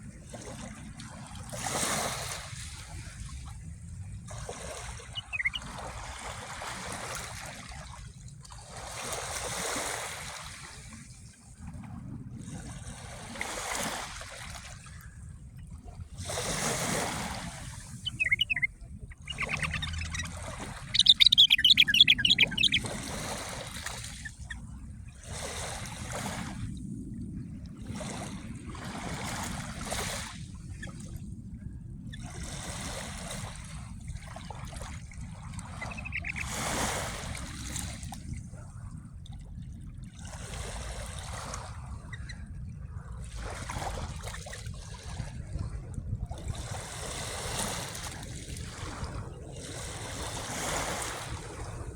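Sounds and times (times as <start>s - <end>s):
small sea waves washing: 0.4s - 11.1s, 16.0s - 31.3s, 32.2s - 38.3s, 46.5s - 51.9s
songbird trilling: 5.0s - 5.7s, 17.9s - 23.3s, 35.7s - 36.8s.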